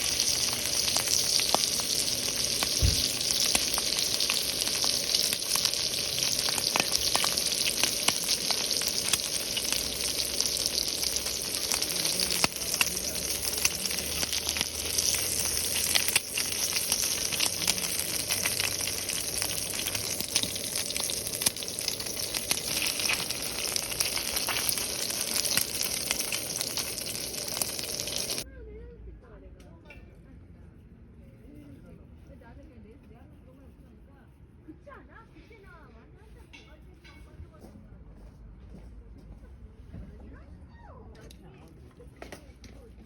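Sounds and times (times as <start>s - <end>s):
food sizzling in a pan: 0.0s - 28.5s.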